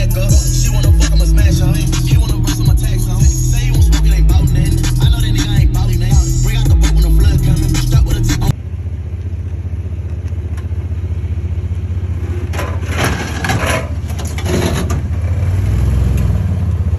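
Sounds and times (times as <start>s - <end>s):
rap music: 0.0s - 8.6s
truck engine idling: 0.0s - 15.4s.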